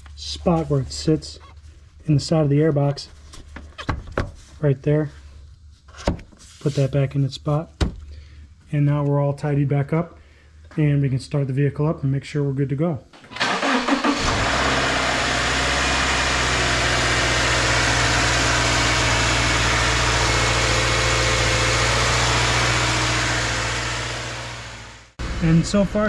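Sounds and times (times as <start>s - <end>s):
car engine starting and idling: 13.2s - 26.0s.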